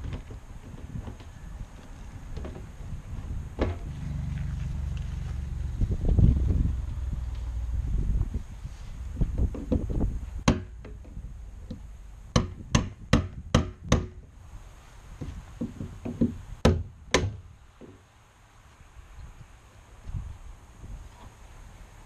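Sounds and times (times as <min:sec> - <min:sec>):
sharp knocks: 0:09.2 - 0:14.2.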